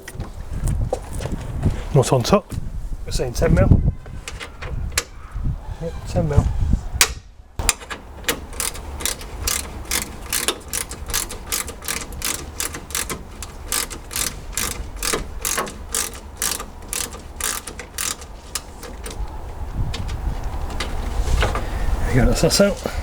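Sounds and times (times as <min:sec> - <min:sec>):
ratchet wrench clicking: 0:07.6 - 0:19.2.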